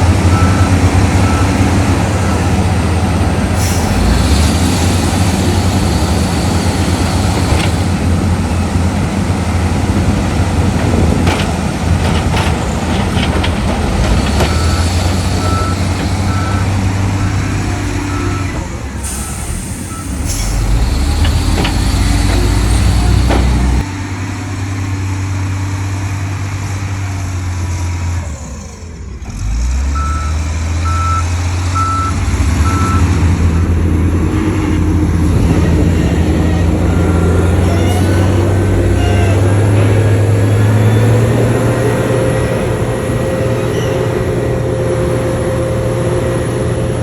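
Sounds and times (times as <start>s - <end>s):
diesel machinery droning: 0.0s - 47.0s
reversing alarm beeps: 0.3s - 2.6s, 14.4s - 20.2s, 30.0s - 33.7s.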